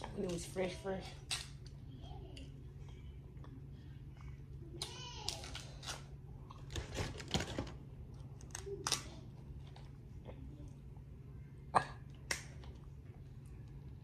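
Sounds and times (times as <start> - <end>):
plastic bag crinkling: 5.4 - 7.8.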